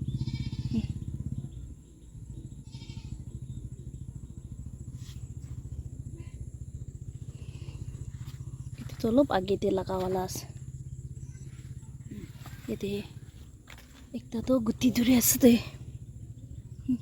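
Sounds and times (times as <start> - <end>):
low pulsing rumble: 0.0 - 17.0.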